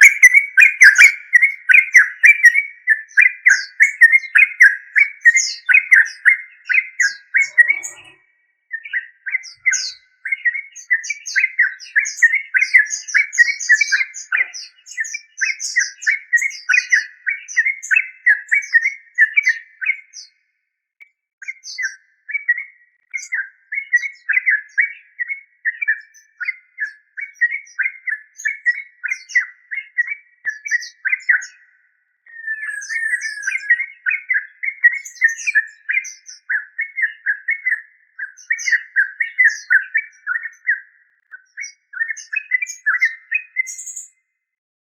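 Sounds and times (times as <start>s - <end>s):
bird singing bubbly chirps: 0.0s - 20.2s, 32.3s - 44.1s.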